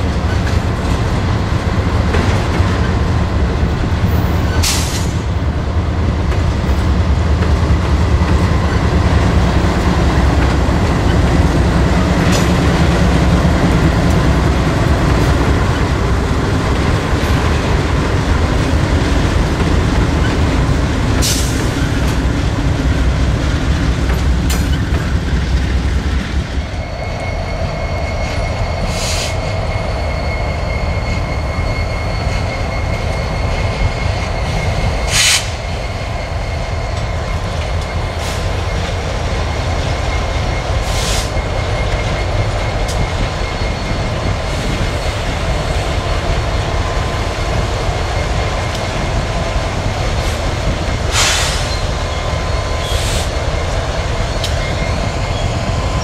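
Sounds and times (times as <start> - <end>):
freight train wheels rumbling: 0.0 - 56.0
high-pitched wheel squeal: 26.6 - 46.1, 51.2 - 56.0.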